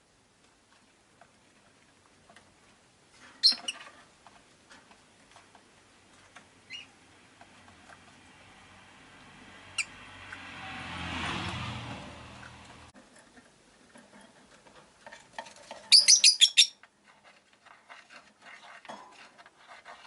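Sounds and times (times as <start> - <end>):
lovebirds chirping and clicking: 3.4 - 3.8, 15.8 - 16.8
vehicle passing outside: 7.0 - 13.0.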